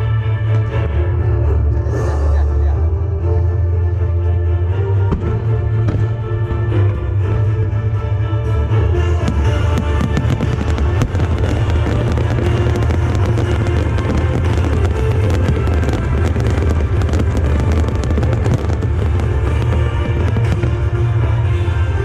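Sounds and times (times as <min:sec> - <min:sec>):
loud music with heavy bass: 0:00.0 - 0:22.0
fireworks crackling and banging: 0:09.2 - 0:22.0.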